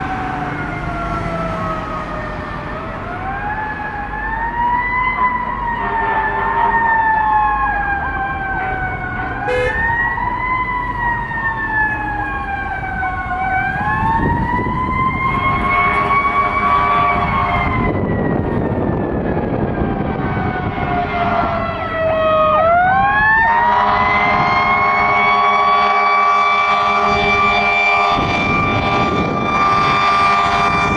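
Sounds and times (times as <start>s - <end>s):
truck engine: 0.0s - 23.8s
fire engine siren wailing: 0.0s - 30.9s.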